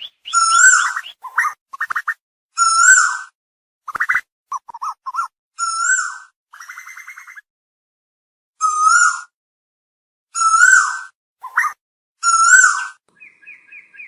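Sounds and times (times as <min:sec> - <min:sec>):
bird calling: 0:00.0 - 0:03.2, 0:10.4 - 0:14.0.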